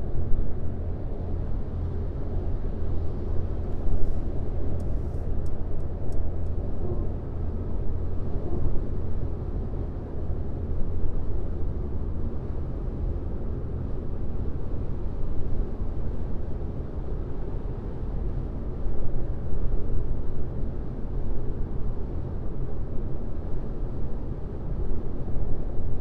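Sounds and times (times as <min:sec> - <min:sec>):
car tyres and engine rumble: 0:00.1 - 0:10.3.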